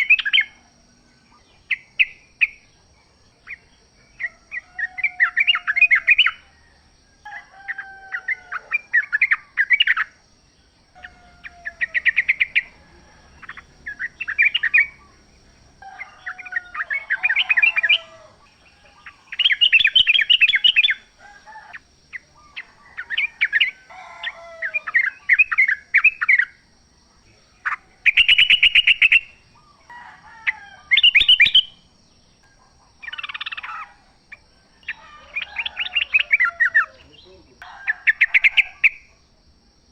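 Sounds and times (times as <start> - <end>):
bulbul singing: 0.0 - 6.7, 7.3 - 39.2
faint steady high tone: 10.9 - 26.3.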